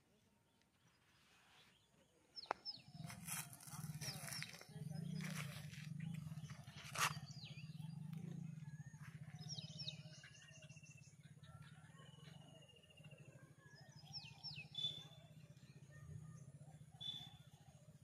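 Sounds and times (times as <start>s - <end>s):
steady low hum: 2.8s - 18.0s
birds whistling downward: 17.0s - 17.5s.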